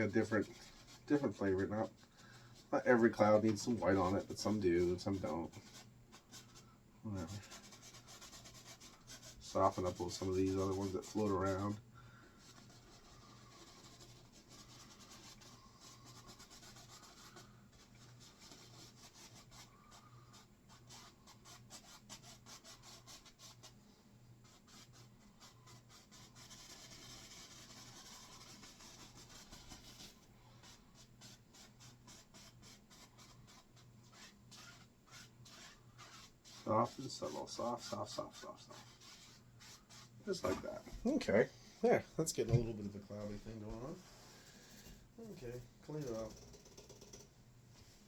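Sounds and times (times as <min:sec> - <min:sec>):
fan brush rubbing on canvas: 0:00.0 - 0:48.0.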